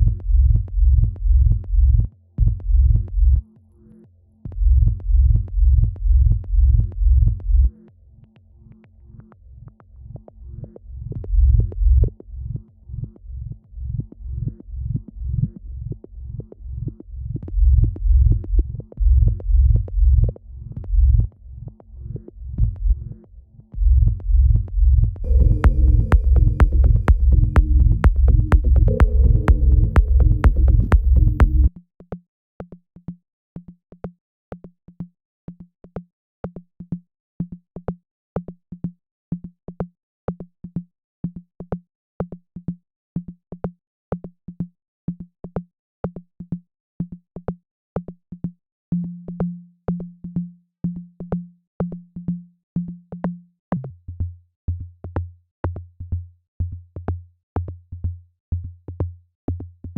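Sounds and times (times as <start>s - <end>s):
bass-heavy electronic music loop: 0.0s - 3.5s, 4.5s - 7.9s, 8.6s - 31.7s
repeating low synth note: 25.2s - 31.7s.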